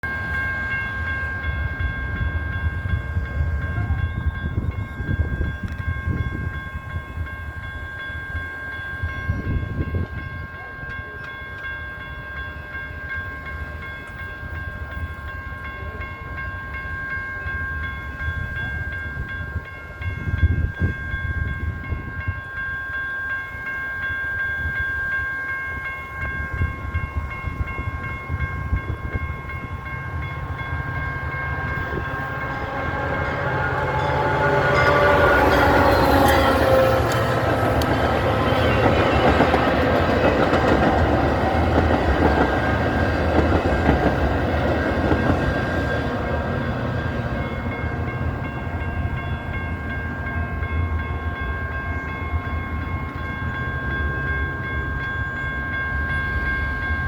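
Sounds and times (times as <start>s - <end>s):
crossing bell ringing: 0.0s - 57.0s
train rumbling past: 0.0s - 57.0s.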